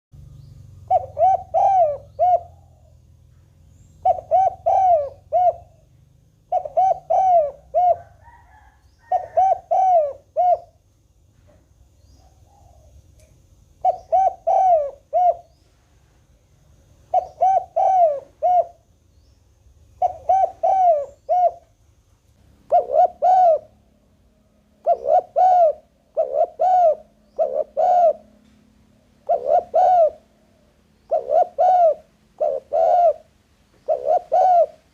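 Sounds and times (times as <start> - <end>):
dove cooing: 0.8 - 3.2, 4.0 - 10.8, 12.2 - 13.0, 13.8 - 15.6, 17.1 - 18.9, 20.0 - 21.7, 22.6 - 23.9, 24.7 - 28.4, 29.2 - 34.9.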